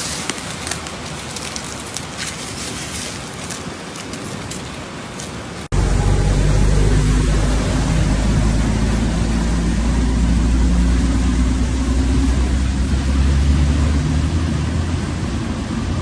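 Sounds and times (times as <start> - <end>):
heavy rain hissing: 4.8 - 16.0
vehicle engine humming: 5.6 - 16.0.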